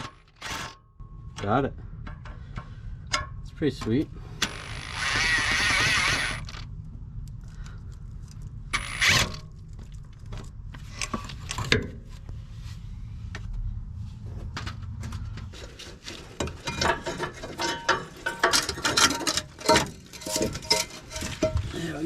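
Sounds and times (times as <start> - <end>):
impact wrench bursts: 4.4 - 6.6, 8.7 - 9.4
metal tools clinking: 16.4 - 22.0.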